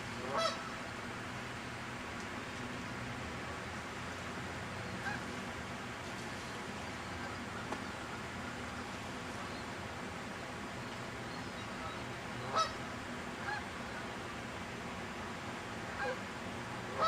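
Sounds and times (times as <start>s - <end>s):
steady background hiss: 0.0s - 17.0s
waterfowl honking: 0.2s - 0.8s, 5.0s - 5.3s, 11.6s - 12.8s, 13.4s - 14.0s, 15.9s - 16.2s.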